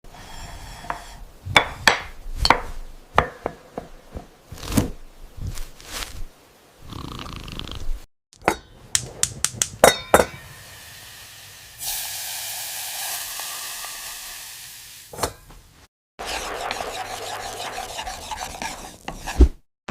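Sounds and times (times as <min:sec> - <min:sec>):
food sizzling in a pan: 0:10.3 - 0:15.1.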